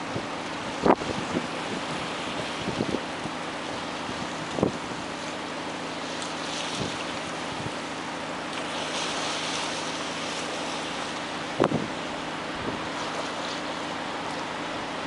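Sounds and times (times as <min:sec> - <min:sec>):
strong wind buffeting microphone: 0:00.0 - 0:03.4, 0:04.0 - 0:05.2, 0:11.5 - 0:13.0.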